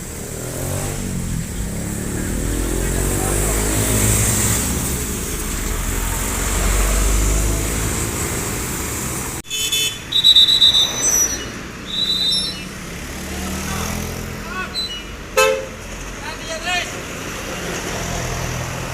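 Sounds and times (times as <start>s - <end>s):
diesel truck engine labouring: 0.0s - 18.9s
short high-pitched toots: 9.5s - 12.8s.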